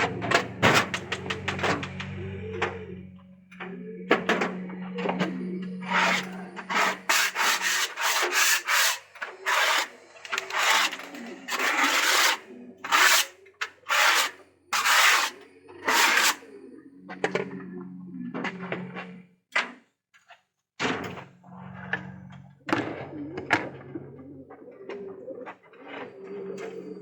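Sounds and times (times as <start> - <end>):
scraper on wood: 5.8 - 13.3, 13.9 - 16.4.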